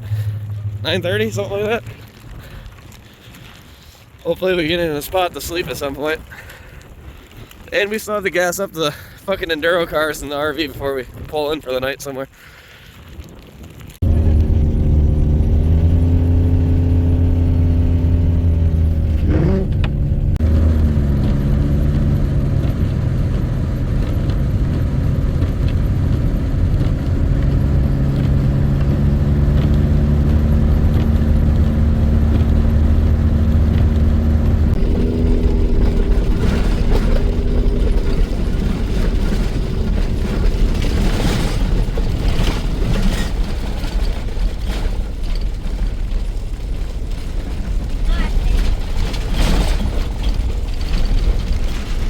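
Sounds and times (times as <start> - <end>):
engine droning from inside cab: 0.0 - 2.2, 14.0 - 42.6
knocks and rattles: 14.0 - 52.0.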